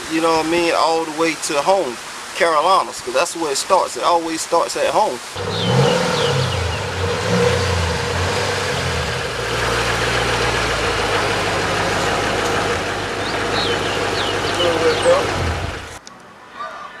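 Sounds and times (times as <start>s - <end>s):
vehicle engine idling: 5.4s - 16.0s.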